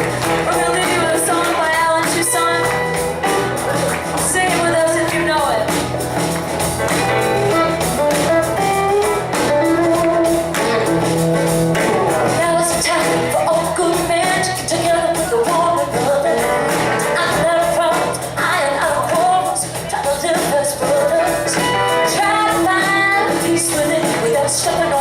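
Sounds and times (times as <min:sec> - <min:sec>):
woman singing lead: 0:00.0 - 0:05.9, 0:12.2 - 0:25.0
bass guitar: 0:00.0 - 0:25.0
electric guitar: 0:00.0 - 0:25.0
steady drum beat: 0:00.0 - 0:25.0.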